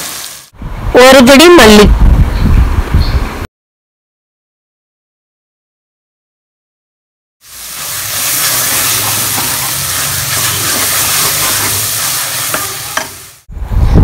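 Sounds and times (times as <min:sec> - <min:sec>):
food sizzling in a pan: 0:00.0 - 0:00.5, 0:07.4 - 0:13.5.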